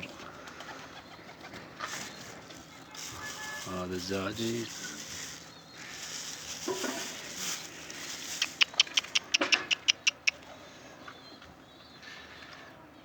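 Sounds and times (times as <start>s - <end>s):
pigeon low call: 0.0s - 4.0s, 4.6s - 11.3s
pigeon sharp clicks: 8.2s - 10.5s.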